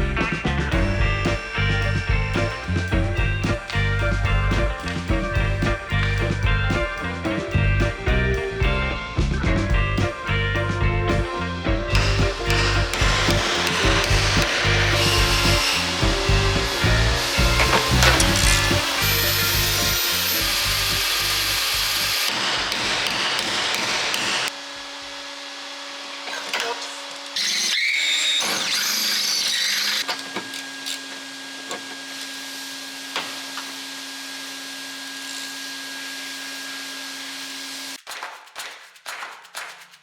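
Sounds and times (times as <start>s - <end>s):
power tool running: 10.6s - 38.0s.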